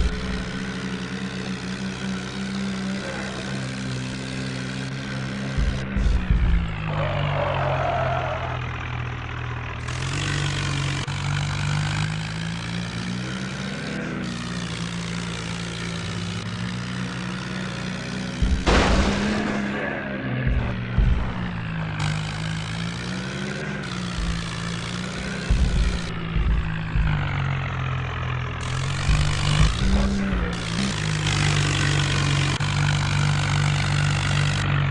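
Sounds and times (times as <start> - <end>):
tractor engine running: 0.0 - 34.9
low thumps: 18.4 - 19.6, 20.5 - 22.0, 25.4 - 27.7
sharp crack: 18.6 - 19.8.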